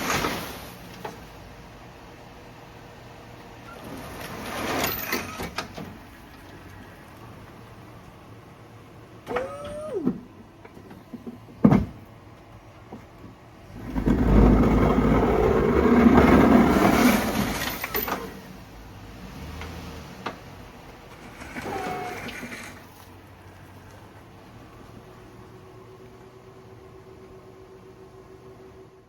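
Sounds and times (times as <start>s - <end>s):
snow-clearing vehicle rushing: 0.0s - 1.3s, 3.6s - 5.6s, 13.7s - 25.4s.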